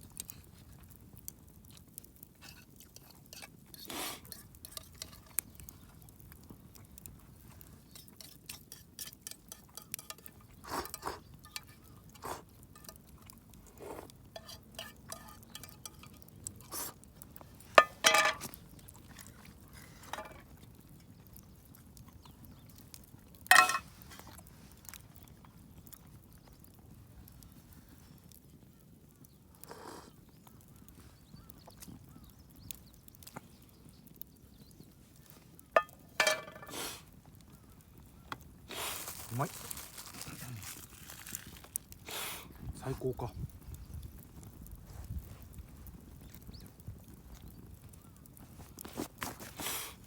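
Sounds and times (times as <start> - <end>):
soft chewing: 0.0 - 42.7, 43.3 - 50.0
spoon scraping metal tin: 2.4 - 5.5, 8.0 - 13.0, 14.4 - 16.9, 17.8 - 18.5, 23.5 - 23.9, 35.8 - 36.9.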